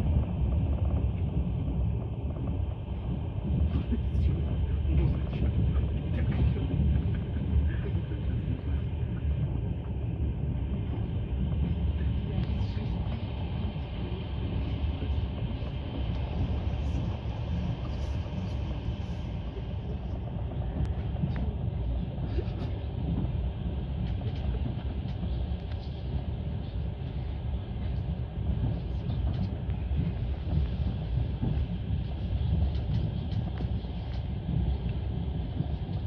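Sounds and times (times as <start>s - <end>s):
train low rumble: 0.0s - 36.0s.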